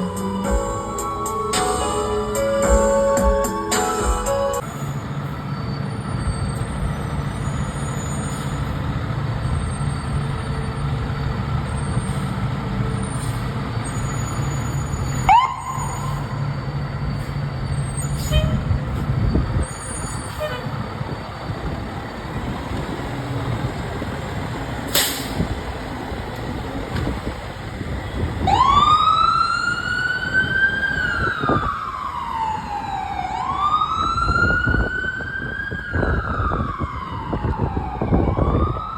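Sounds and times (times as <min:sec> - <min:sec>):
siren wailing: 0:00.0 - 0:04.6, 0:14.8 - 0:16.8, 0:28.2 - 0:38.9
siren chirp: 0:14.0 - 0:18.6, 0:28.4 - 0:38.9.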